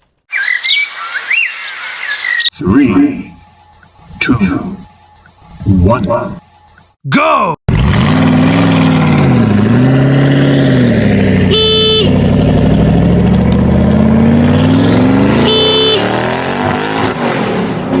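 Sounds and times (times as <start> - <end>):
vehicle engine revving: 7.7 - 18.0
short horn beeps: 11.5 - 12.2, 15.4 - 16.2.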